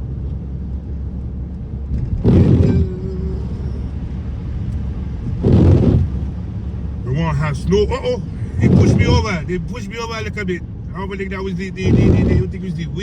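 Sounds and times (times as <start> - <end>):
car engine and tyres rumbling: 0.0 - 13.0
loud whoosh: 5.3 - 6.3, 11.7 - 13.0.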